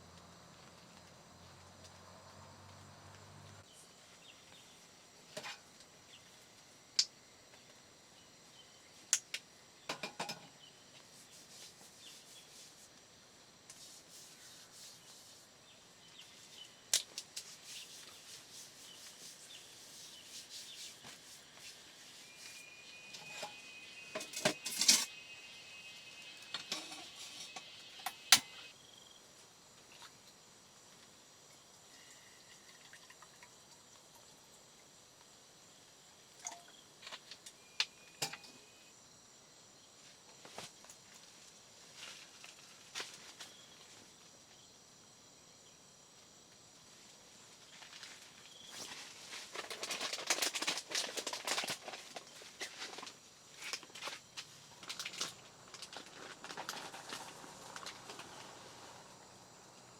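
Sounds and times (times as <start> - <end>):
rubbing and scraping: 17.4 - 22.6
faint steady high tone: 22.0 - 28.8, 31.8 - 32.8, 37.4 - 39.0.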